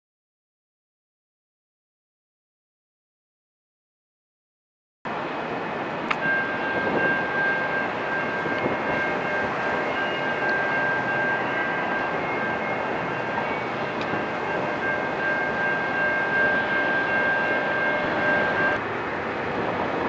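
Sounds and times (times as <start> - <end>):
steady high tones: 5.1 - 19.4
diesel locomotive rumble: 5.1 - 20.0.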